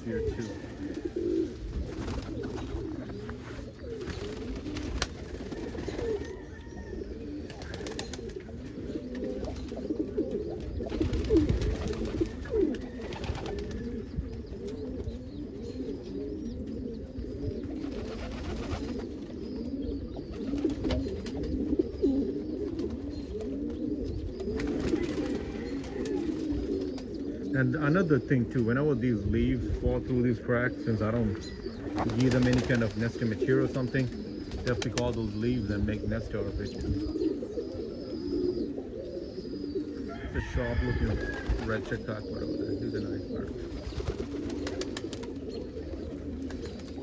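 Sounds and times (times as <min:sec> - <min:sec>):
pigeons cooing: 0:00.0 - 0:47.0.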